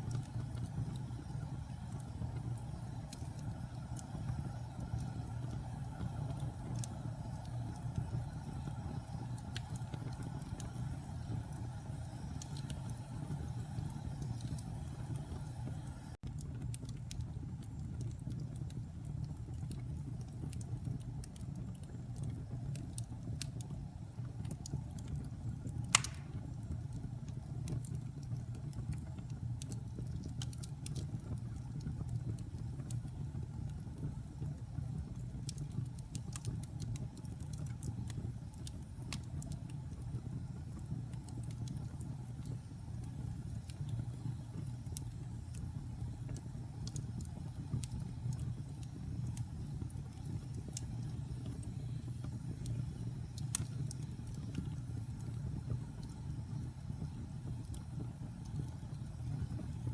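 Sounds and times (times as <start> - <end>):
fire crackling: 0.0 - 59.9
fire flames rumbling: 0.0 - 59.9
loud pop from fire: 25.9 - 26.5.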